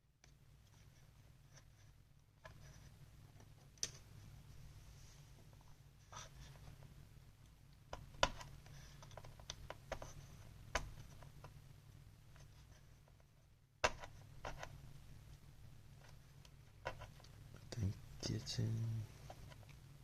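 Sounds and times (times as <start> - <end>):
steady low hum: 0.0 - 20.0
hands clicking and scraping parts: 7.9 - 11.6.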